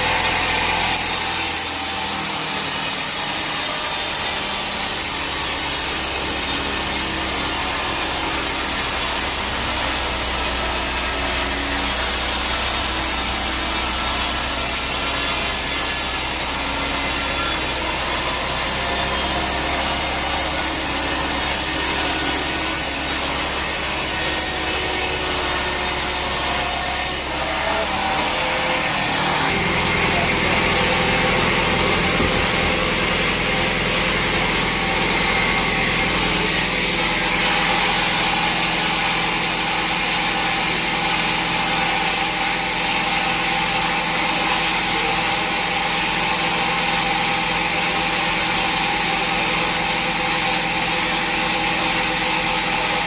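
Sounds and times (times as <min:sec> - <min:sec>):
band saw cutting log: 0:00.0 - 0:53.0
machinery running: 0:04.9 - 0:42.0.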